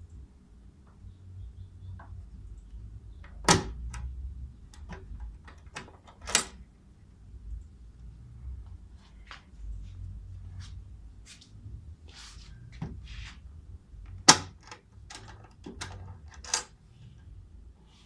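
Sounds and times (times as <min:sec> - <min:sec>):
steel tool box clicks and knocks: 0:14.2 - 0:16.7.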